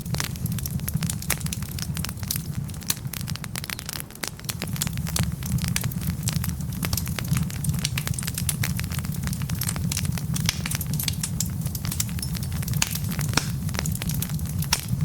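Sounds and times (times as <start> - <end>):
logs crackling and popping: 0.0 - 15.0
low rumble of flames: 0.0 - 15.0.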